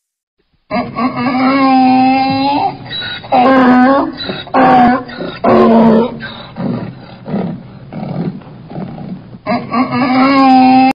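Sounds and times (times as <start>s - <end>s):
animal calling: 0.7s - 10.9s.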